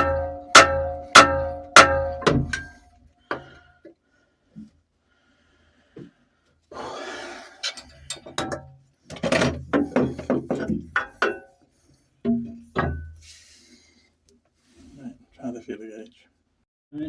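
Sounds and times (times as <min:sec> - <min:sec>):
hand tools knocking on metal: 0:00.0 - 0:03.5, 0:08.1 - 0:11.5, 0:12.2 - 0:13.2.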